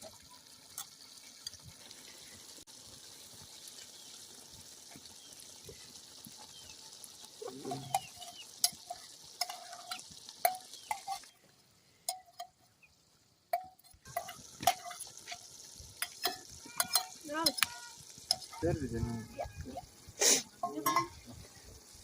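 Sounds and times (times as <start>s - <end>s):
food sizzling in a pan: 0.0s - 22.0s
utensil scraping a pan: 7.6s - 11.3s, 14.1s - 21.6s.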